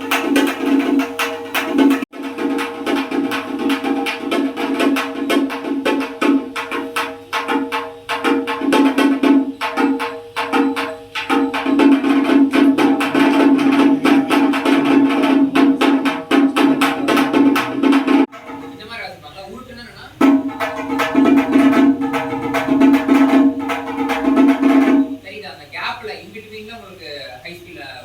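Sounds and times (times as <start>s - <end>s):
pitched drum struck rapidly: 0.0s - 25.5s.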